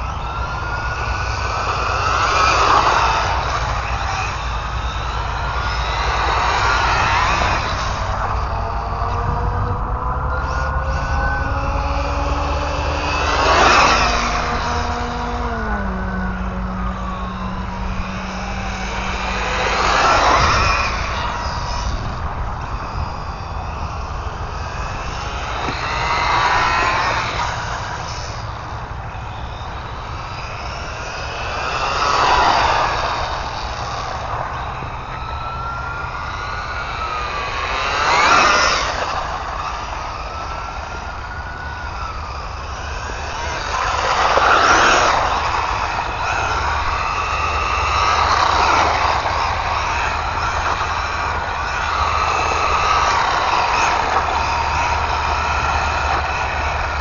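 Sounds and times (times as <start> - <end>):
steady low rumble: 0.0 - 38.2
rc car electric motor whining: 0.0 - 57.0.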